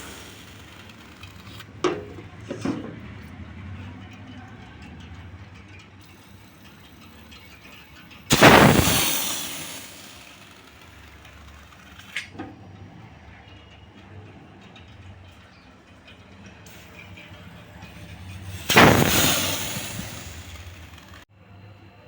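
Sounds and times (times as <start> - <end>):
pressurised gas blast: 0.0 - 1.6, 8.3 - 11.3, 16.7 - 21.2.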